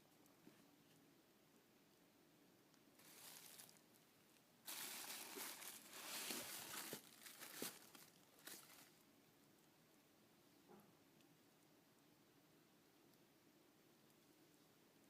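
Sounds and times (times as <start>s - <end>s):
packaging crinkling: 3.0s - 3.8s, 4.7s - 9.0s.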